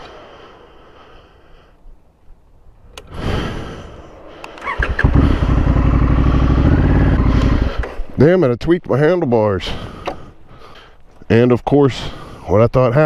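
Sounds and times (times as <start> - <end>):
motorcycle engine cranking: 4.6 - 7.8
motorcycle engine running: 4.7 - 7.8.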